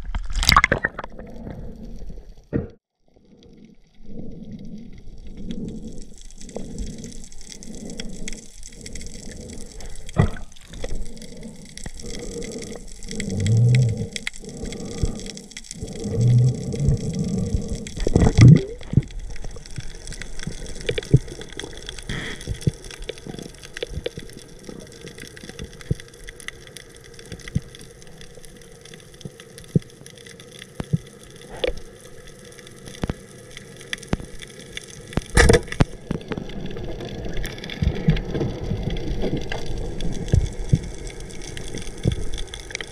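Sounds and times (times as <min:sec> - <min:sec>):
water sloshing and gurgling: 0:00.0 - 0:42.9.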